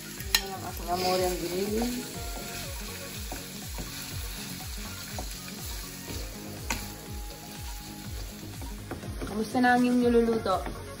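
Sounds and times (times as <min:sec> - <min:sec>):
background music with beat: 0:00.0 - 0:11.0
meat sizzling in frying pan: 0:00.0 - 0:11.0
wooden spatula stirring: 0:00.8 - 0:06.8.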